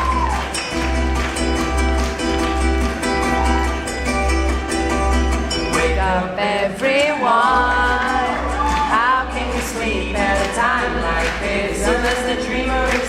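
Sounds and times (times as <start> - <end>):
acoustic band playing: 0.0 - 13.0
person singing: 5.6 - 13.0.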